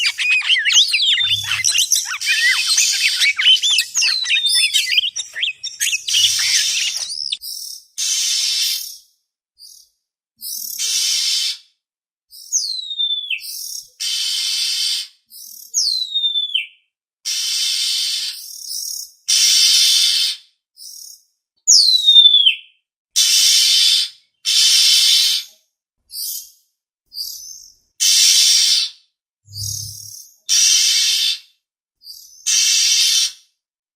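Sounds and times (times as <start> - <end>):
bird whistles sliding down: 0.0 - 7.4, 29.5 - 30.1
harsh buzzy bird rasps: 0.0 - 7.4.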